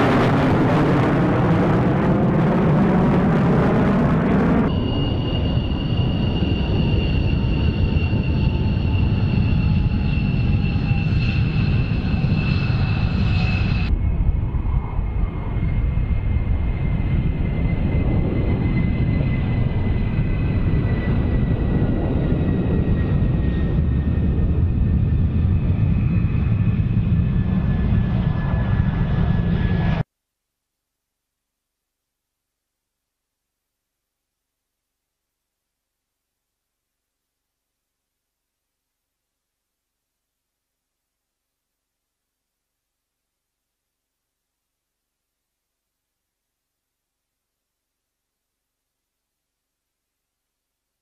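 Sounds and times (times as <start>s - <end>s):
jet engine whine: 0.0s - 30.1s.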